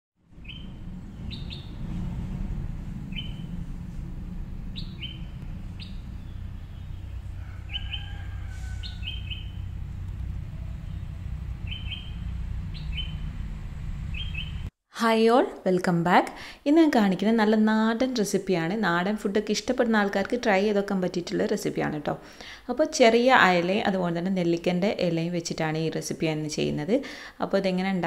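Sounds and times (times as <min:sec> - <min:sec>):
steady low rumble: 0:00.2 - 0:14.7
small bird chirping: 0:00.3 - 0:02.0, 0:03.0 - 0:03.7, 0:04.7 - 0:13.4, 0:14.1 - 0:14.7.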